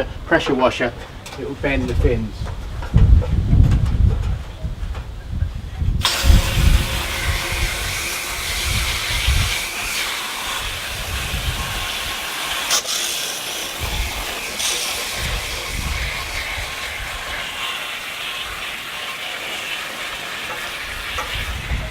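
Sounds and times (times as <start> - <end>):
garden hose spraying water: 6.0 - 21.9.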